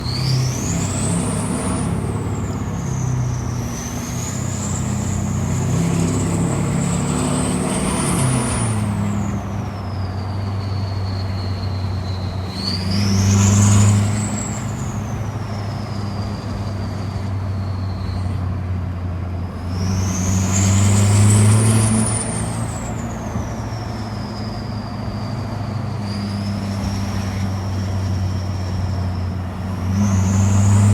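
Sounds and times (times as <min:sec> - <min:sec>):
turbo whistle: 0:00.0 - 0:18.5
diesel engine revving: 0:00.0 - 0:30.9.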